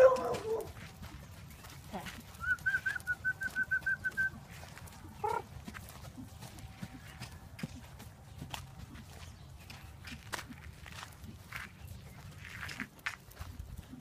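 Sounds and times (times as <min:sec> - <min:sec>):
bird chirping: 0:11.4 - 0:12.6.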